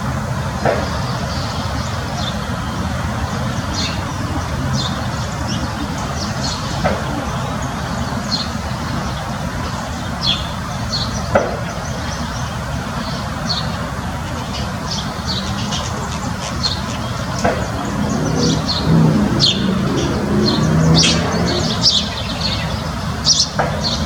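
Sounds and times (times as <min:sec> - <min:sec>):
small birds chirping: 0:00.6 - 0:24.0
steady low rumble: 0:14.7 - 0:23.2.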